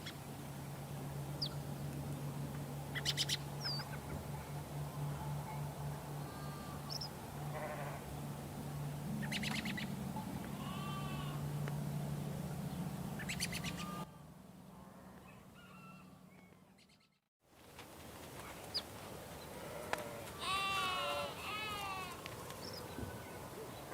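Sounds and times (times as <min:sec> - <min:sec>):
birds chirping: 0:00.0 - 0:01.7, 0:02.9 - 0:14.1
low hum: 0:00.0 - 0:17.3
sheep bleating: 0:06.2 - 0:06.9, 0:07.5 - 0:08.0, 0:10.5 - 0:11.4, 0:13.8 - 0:14.1, 0:19.7 - 0:22.2.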